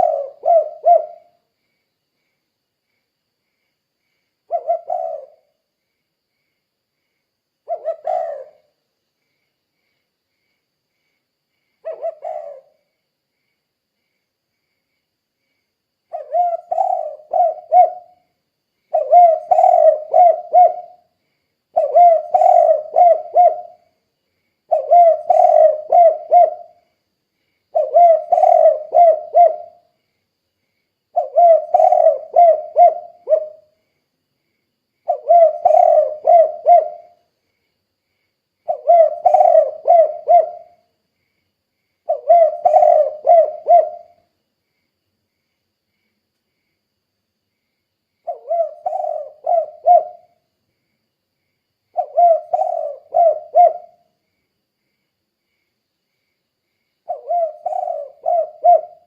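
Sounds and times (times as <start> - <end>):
dove cooing: 0.0 - 1.4, 4.5 - 5.6, 7.6 - 8.7, 11.8 - 12.8, 16.1 - 18.2, 18.9 - 21.1, 21.7 - 23.8, 24.7 - 26.8, 27.7 - 29.8, 31.2 - 33.7, 35.1 - 37.2, 38.7 - 40.8, 42.1 - 44.2, 48.3 - 50.4, 52.0 - 54.0, 57.1 - 59.0.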